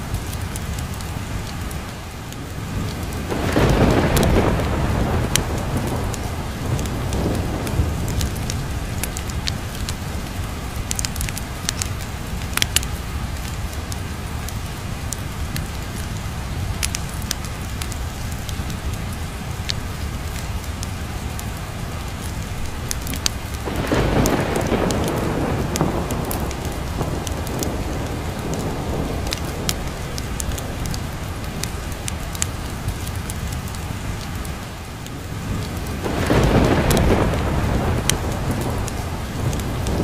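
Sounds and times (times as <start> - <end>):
fireplace crackling and popping: 0.0 - 40.0
steady rain: 0.0 - 40.0
thunder rolling: 2.5 - 10.2, 23.0 - 32.6, 35.4 - 40.0.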